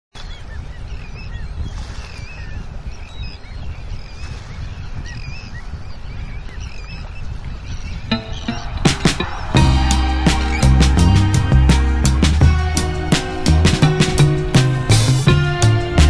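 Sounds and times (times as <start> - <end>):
birds calling: 0.2 - 16.0
plucked music notes: 8.1 - 16.0.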